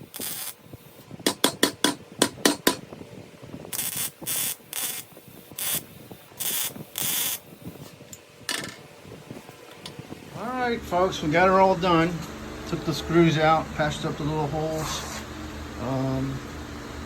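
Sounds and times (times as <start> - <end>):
welding hiss bursts: 0.0 - 1.4, 3.7 - 7.9
welding clicks: 0.0 - 2.8, 3.7 - 8.8.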